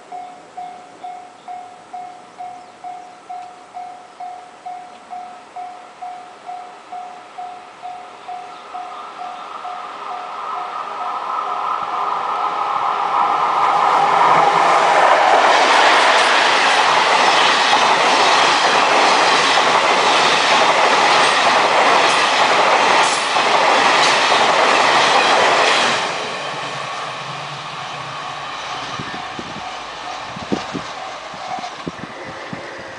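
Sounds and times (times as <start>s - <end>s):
crossing warning bell ringing: 0.0s - 13.0s, 28.6s - 31.3s
train wheels clattering on rail joints: 13.6s - 26.8s.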